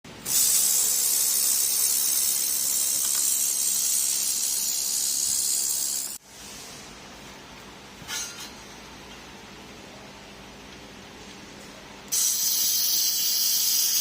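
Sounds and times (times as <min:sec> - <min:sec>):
laser welder high hiss: 0:00.2 - 0:06.2, 0:12.1 - 0:14.0.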